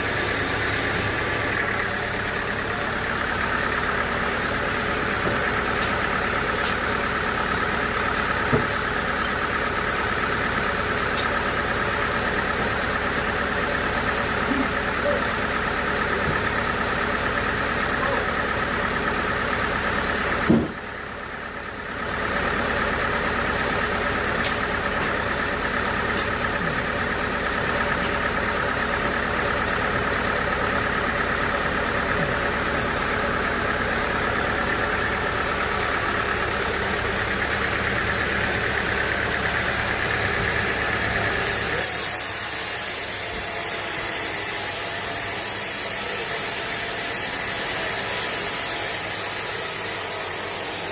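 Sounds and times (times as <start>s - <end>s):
sawmill machinery humming: 0.0s - 50.9s
sharp knock: 20.5s - 20.8s.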